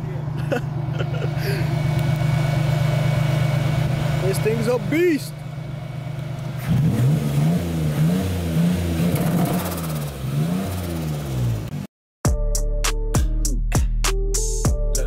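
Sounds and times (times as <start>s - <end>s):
car engine idling and revving: 0.0s - 11.9s.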